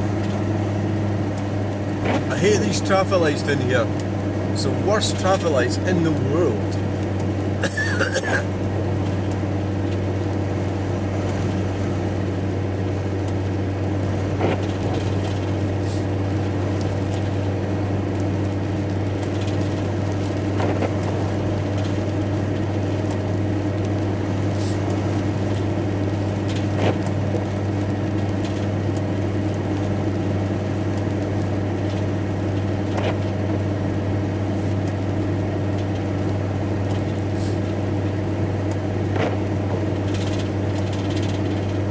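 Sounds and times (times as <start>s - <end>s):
van engine idling: 0.0s - 26.6s.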